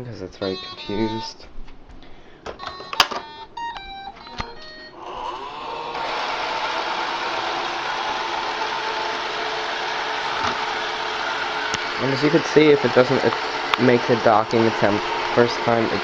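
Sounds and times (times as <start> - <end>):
robot vacuum motors whirring: 5.0 - 16.0.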